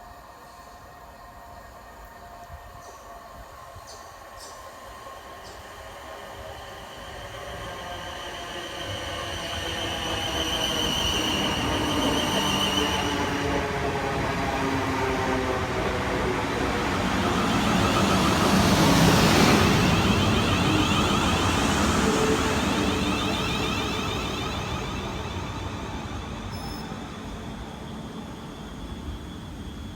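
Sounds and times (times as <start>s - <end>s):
train wheels rumbling on rails: 2.3s - 29.9s
train drive whining: 2.6s - 29.9s.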